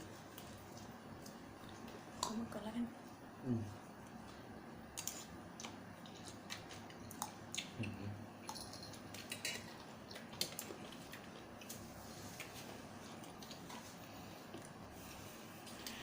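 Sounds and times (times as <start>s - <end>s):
person chewing: 5.0s - 14.9s
food clicks and crackles: 8.5s - 11.8s.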